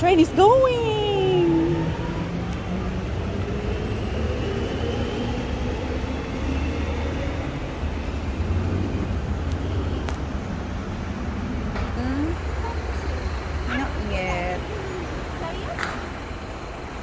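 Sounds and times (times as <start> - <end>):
train rumble: 0.0 - 17.0
faint high whine: 12.0 - 17.0.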